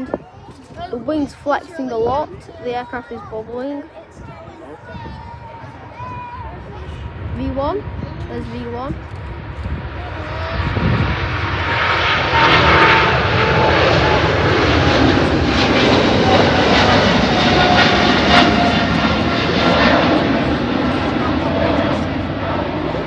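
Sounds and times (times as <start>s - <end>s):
jet engines at takeoff thrust: 5.2s - 23.0s.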